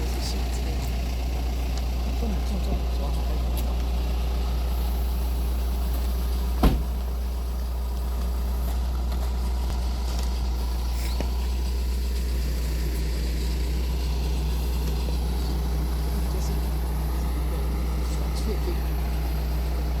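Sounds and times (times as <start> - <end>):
engine idling: 0.0 - 20.0
sharp knock: 6.6 - 6.9.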